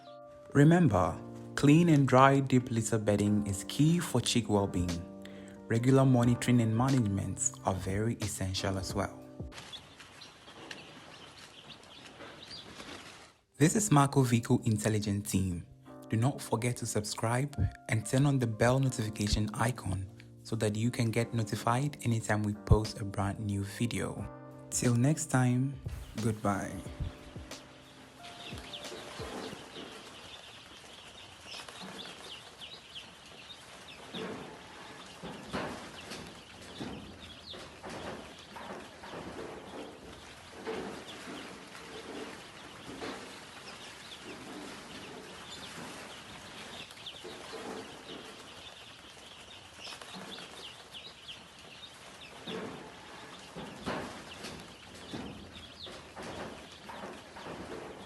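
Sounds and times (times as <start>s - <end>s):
chicks peeping: 6.2s - 13.2s, 24.8s - 58.0s.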